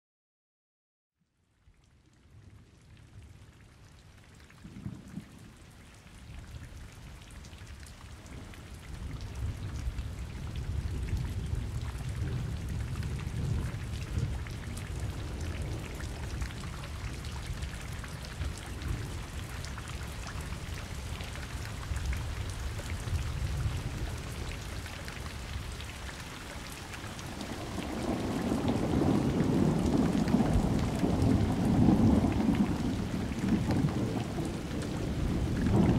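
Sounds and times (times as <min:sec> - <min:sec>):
steady rain falling: 0:01.2 - 0:35.9
rolling thunder: 0:09.3 - 0:16.6, 0:27.4 - 0:35.9.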